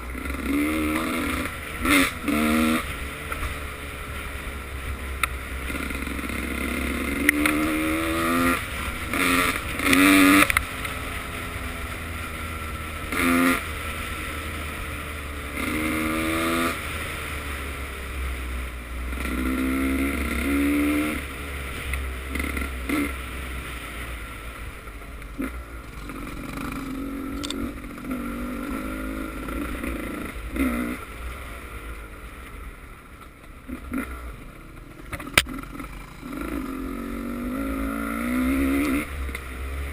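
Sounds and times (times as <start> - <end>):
bikes passing: 16.3 - 39.9
motocross engines revving: 25.4 - 31.1.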